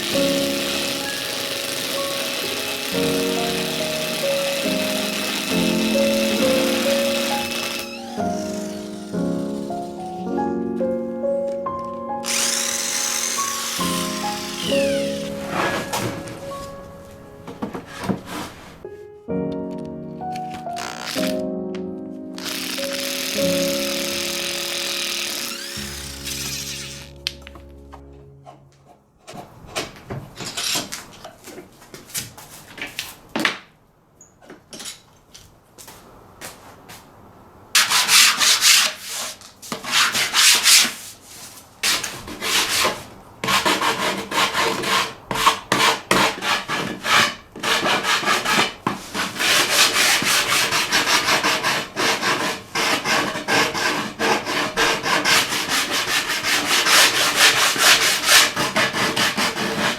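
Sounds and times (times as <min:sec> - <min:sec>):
sandpaper rubbing: 0:00.0 - 0:10.3, 0:12.2 - 0:16.6, 0:17.9 - 0:18.8, 0:22.4 - 0:27.2, 0:37.8 - 0:59.9
handling knocks: 0:15.3 - 0:18.8.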